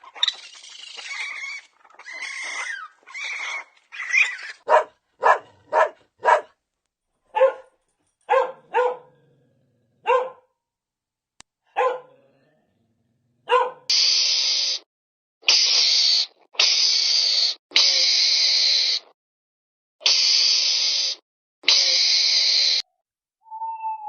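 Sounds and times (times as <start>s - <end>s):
animal hissing: 0.0s - 3.6s, 13.9s - 14.9s, 15.5s - 19.1s, 20.0s - 22.9s
dog barking: 4.6s - 6.6s, 7.3s - 9.2s, 10.0s - 10.5s, 11.7s - 12.2s, 13.4s - 13.9s.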